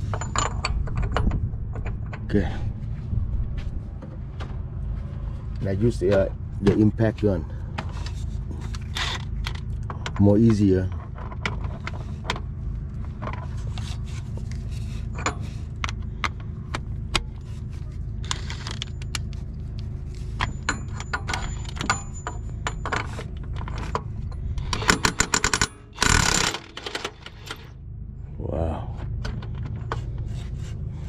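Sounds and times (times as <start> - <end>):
metal tools clinking: 0.0 - 1.3, 20.2 - 27.7
low hum: 0.0 - 31.0.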